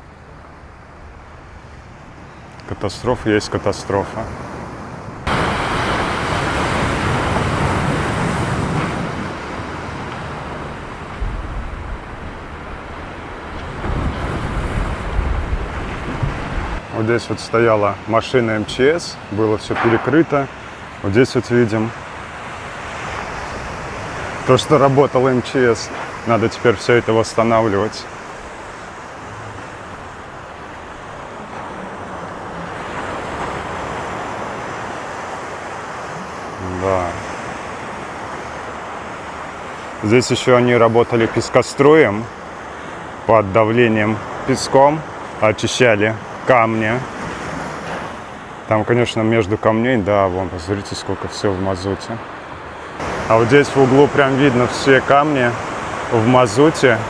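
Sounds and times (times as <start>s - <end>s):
sea surf breaking: 0.0s - 57.0s
wind buffeting microphone: 4.2s - 17.0s.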